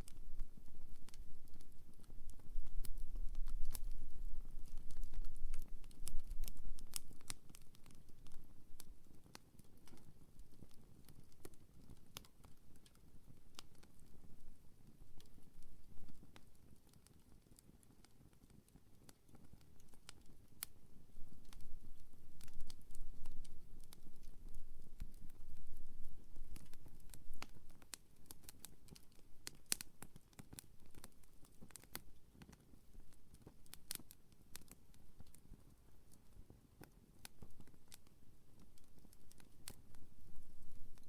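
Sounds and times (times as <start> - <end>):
low rumble of flames: 0.0 - 12.7, 19.8 - 32.0
campfire crackles and pops: 0.0 - 41.0.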